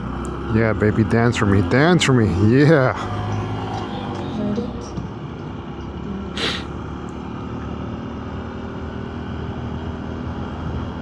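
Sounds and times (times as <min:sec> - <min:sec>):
short hiss: 0:06.4 - 0:06.7.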